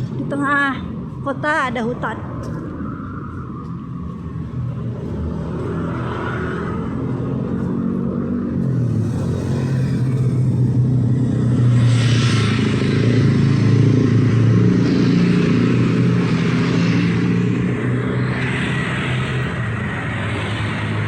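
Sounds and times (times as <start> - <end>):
car engines: 0.0 - 21.0
motorcycle engine: 4.7 - 21.0.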